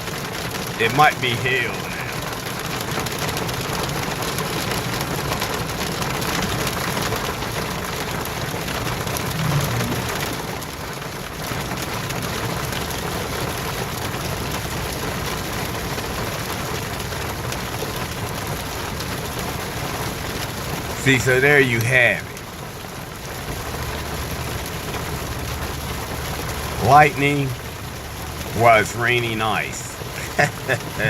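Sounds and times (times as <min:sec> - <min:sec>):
hail falling: 0:00.0 - 0:09.4.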